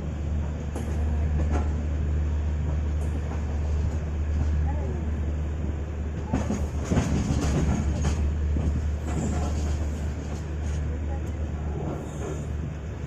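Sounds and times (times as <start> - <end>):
train rumbling on track: 0.0 - 13.0
wheels clattering over rail joints: 6.2 - 12.6.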